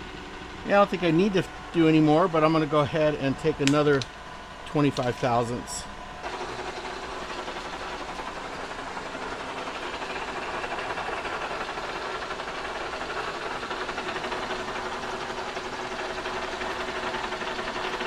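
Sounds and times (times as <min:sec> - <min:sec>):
milling machine cutting metal: 0:04.7 - 0:18.0.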